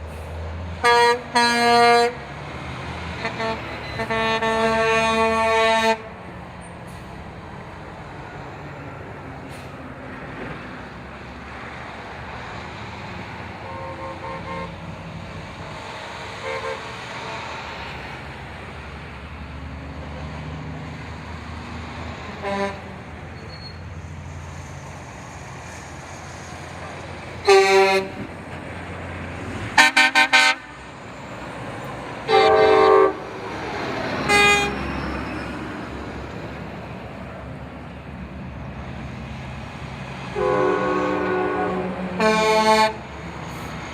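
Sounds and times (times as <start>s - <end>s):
truck engines rumbling: 0.0s - 43.9s
truck horns honking: 0.6s - 7.1s, 13.3s - 18.8s, 22.1s - 24.0s, 27.2s - 35.8s, 40.2s - 43.8s.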